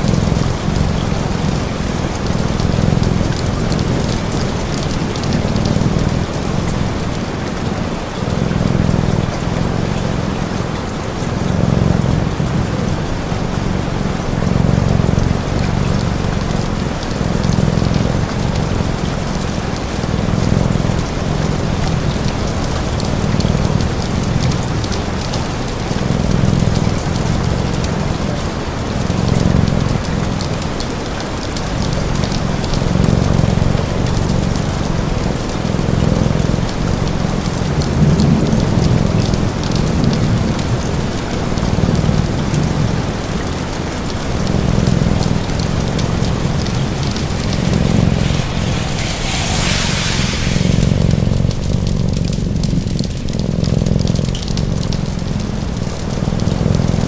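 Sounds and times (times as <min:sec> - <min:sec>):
cat purring: 0:00.0 - 0:57.0
steady rain: 0:00.0 - 0:57.0
fireplace crackling: 0:44.1 - 0:54.0.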